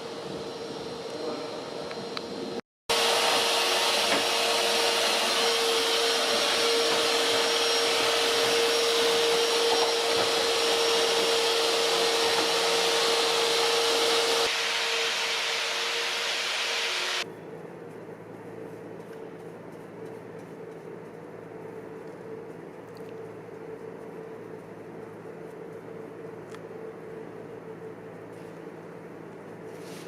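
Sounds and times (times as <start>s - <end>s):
machine motor hiss and whine: 0.0s - 17.3s.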